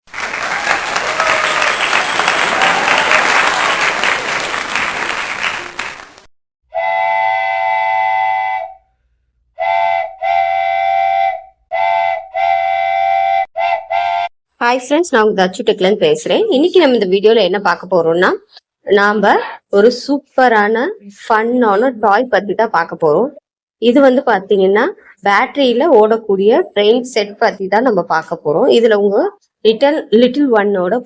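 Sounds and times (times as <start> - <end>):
train whistle chord: 6.7 - 9.0, 9.6 - 14.3.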